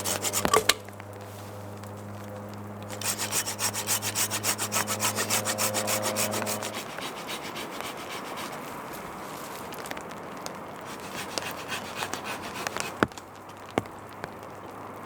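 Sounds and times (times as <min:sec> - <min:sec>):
hand saw cutting wood: 0:00.0 - 0:00.8, 0:02.9 - 0:09.1, 0:10.9 - 0:13.1.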